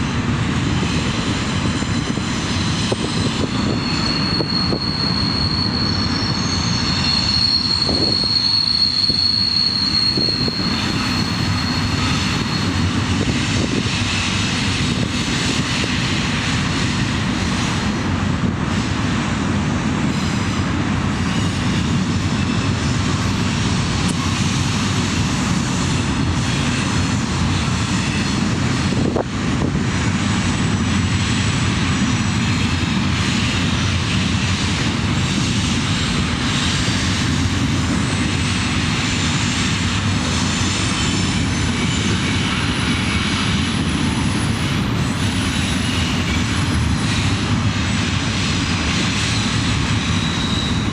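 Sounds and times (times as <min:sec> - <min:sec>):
diesel locomotive rumbling past: 0:00.0 - 0:50.9
thin high squeal: 0:01.7 - 0:12.9, 0:49.4 - 0:50.9.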